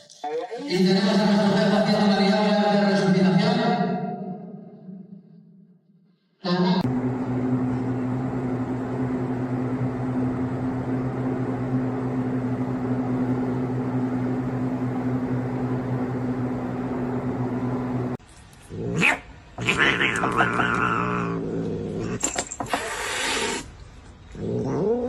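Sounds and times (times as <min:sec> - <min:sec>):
cat yowling: 0:19.0 - 0:21.4.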